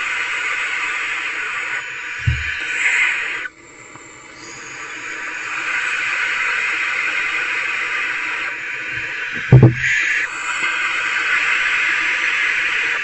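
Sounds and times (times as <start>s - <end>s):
owlets hissing begging calls: 0.0s - 3.6s, 4.2s - 13.0s
loud thumps: 2.2s - 2.6s, 9.0s - 10.0s.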